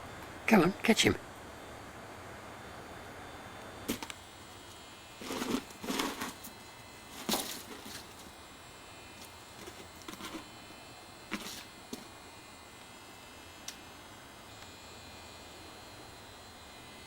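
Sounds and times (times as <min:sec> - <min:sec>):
dog scuffling with a ball: 0:05.2 - 0:08.4, 0:09.2 - 0:10.5, 0:11.3 - 0:12.1.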